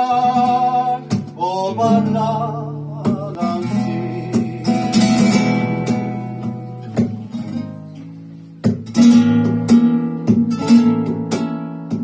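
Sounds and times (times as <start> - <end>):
person singing: 0.0 - 5.2
flamenco guitar strumming: 0.0 - 12.0.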